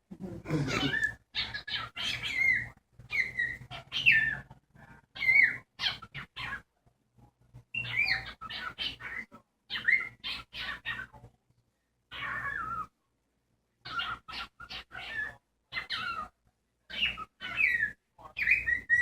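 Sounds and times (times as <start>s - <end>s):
cockatiel chirping and squawking: 0.7s - 4.5s, 5.1s - 6.7s, 7.7s - 11.2s, 12.1s - 13.0s, 13.8s - 19.0s.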